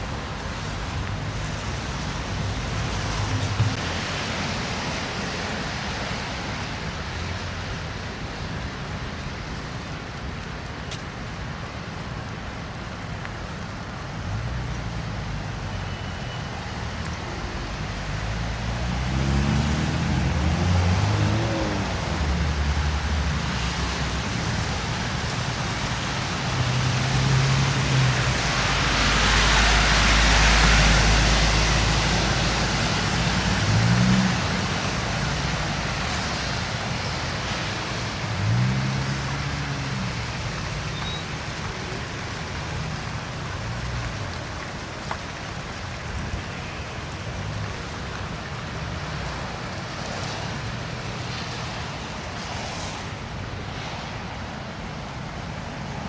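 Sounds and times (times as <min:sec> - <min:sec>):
road traffic: 0:00.0 - 0:56.0
loud vehicle passing close: 0:18.4 - 0:24.2.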